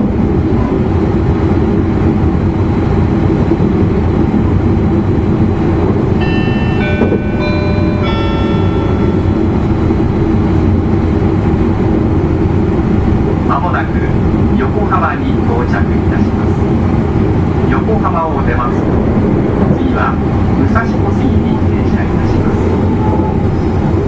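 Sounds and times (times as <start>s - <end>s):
train rumbling at speed: 0.0s - 24.0s.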